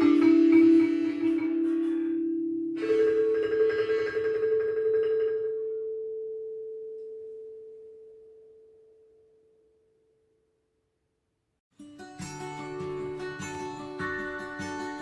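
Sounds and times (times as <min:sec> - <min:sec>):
mallet percussion tone ringing: 0:00.0 - 0:08.1
higher ringing: 0:00.0 - 0:09.4.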